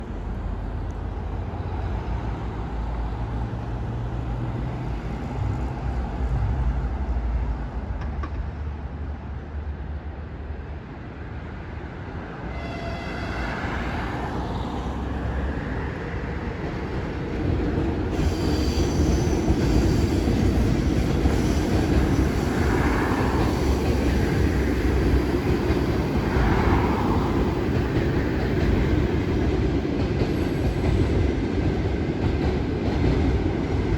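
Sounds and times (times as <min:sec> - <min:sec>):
train coaches rolling by: 0:11.9 - 0:33.9
locomotive humming: 0:12.4 - 0:33.9
train wheel squeals: 0:18.1 - 0:24.1.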